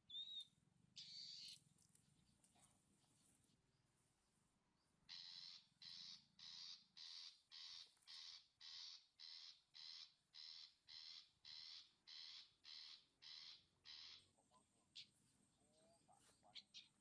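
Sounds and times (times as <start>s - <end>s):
bird harsh scolding calls: 0.1s - 1.6s, 5.1s - 14.3s.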